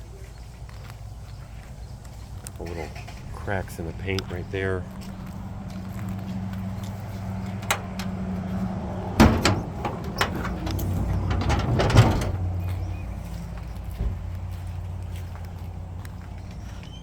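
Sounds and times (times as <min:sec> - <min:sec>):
steady low hum: 0:00.0 - 0:16.6
metal hood clanking open: 0:07.4 - 0:13.0.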